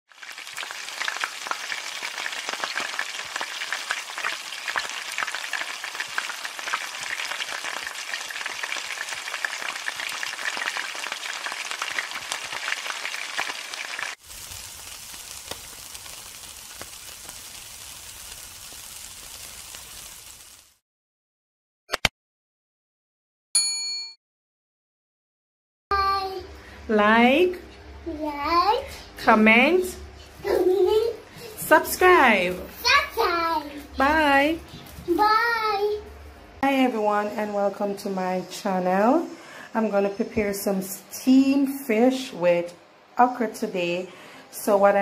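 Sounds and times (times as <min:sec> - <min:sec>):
food sizzling in wok oil: 0:00.1 - 0:20.8
skewers sizzling on grill: 0:00.1 - 0:20.8, 0:27.4 - 0:36.5.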